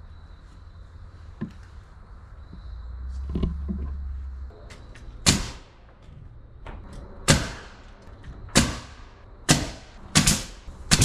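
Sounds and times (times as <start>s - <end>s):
hammer blows driving nails: 5.2s - 6.0s, 7.2s - 11.0s.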